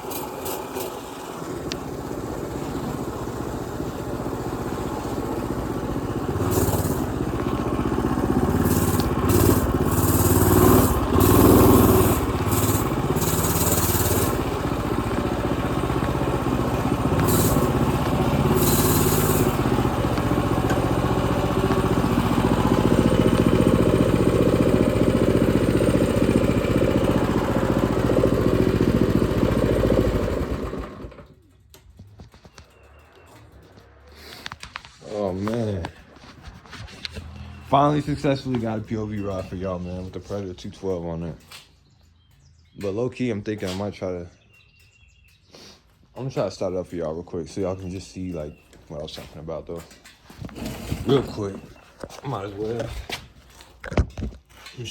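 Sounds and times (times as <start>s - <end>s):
mini bike engine running: 0.0s - 40.1s
short hissing bursts: 17.2s - 19.7s.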